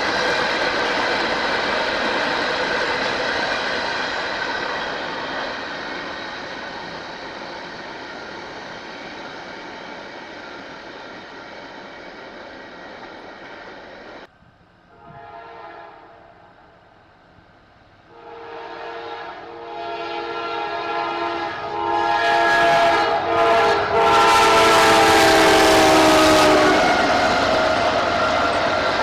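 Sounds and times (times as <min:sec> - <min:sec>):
train rumbling: 0:00.0 - 0:29.0
locomotive air horn: 0:14.9 - 0:16.4, 0:18.1 - 0:27.1.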